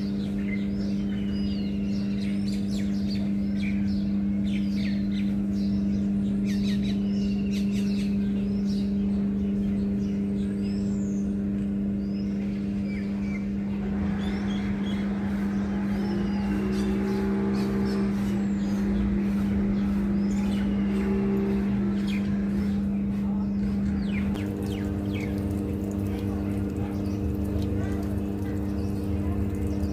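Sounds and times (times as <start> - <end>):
small birds chirping: 0.0 - 29.9
steady low hum: 0.0 - 29.9.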